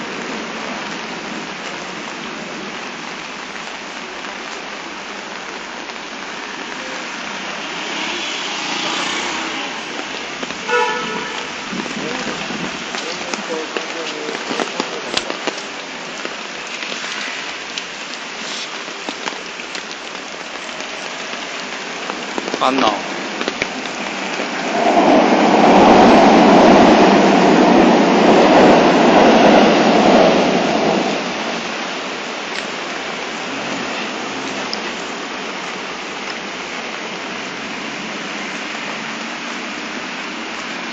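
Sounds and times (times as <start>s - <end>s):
heavy rain on road: 0.0s - 40.9s
hiss of downpour: 0.0s - 40.9s
vehicle driving through water: 7.0s - 11.4s
loud flat tone: 10.6s - 11.6s.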